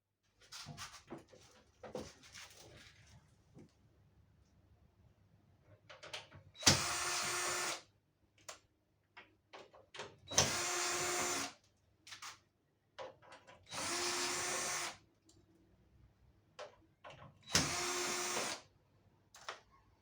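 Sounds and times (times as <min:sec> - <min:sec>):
cordless drill running: 0:06.7 - 0:07.8, 0:10.3 - 0:11.5, 0:13.7 - 0:15.0, 0:17.6 - 0:18.6.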